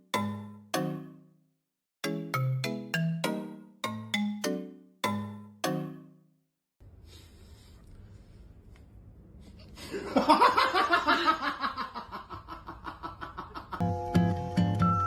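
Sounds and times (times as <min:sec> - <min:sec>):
background music: 0:02.0 - 0:06.2, 0:13.8 - 0:15.0
person laughing: 0:09.8 - 0:13.8.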